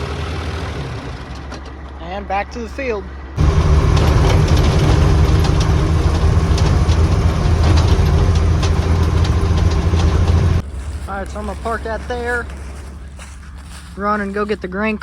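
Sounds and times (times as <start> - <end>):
truck engine running: 0.0 - 13.8
rattles: 3.4 - 10.6.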